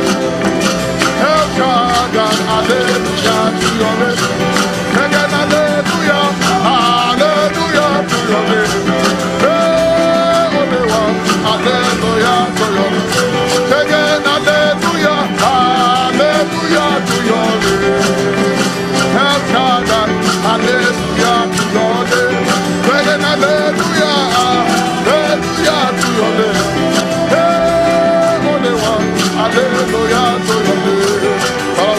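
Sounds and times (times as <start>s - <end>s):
instrumental gospel band music: 0.0s - 31.9s.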